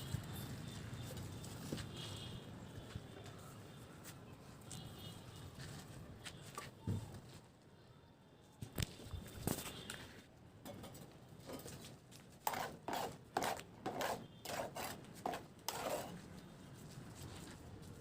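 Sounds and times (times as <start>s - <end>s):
tool scraping mortar: 12.4s - 16.2s.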